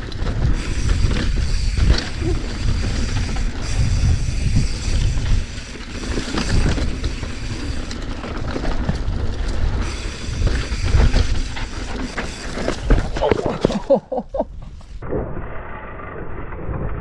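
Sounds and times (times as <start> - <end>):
wind buffeting microphone: 0.0 - 12.0
tyres rumbling over dirt: 0.0 - 14.0
bike knocks and rattles: 4.6 - 13.9.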